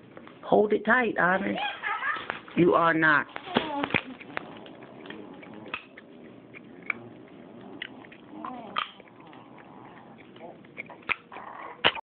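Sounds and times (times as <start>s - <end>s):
child vocalizing: 3.4s - 4.6s.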